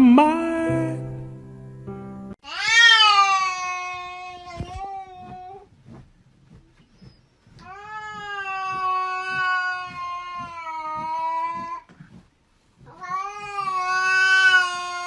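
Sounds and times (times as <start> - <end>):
cat yowling: 13.0 - 15.0.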